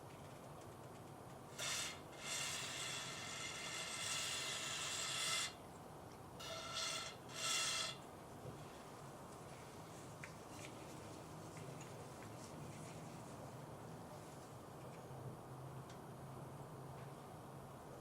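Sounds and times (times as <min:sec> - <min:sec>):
hissing rasping spray bursts: 0:01.5 - 0:04.7.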